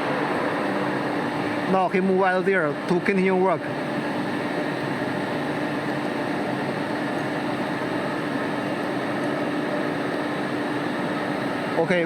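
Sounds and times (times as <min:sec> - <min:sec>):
high whine: 0:00.0 - 0:02.8
router mechanical hum: 0:00.0 - 0:12.0.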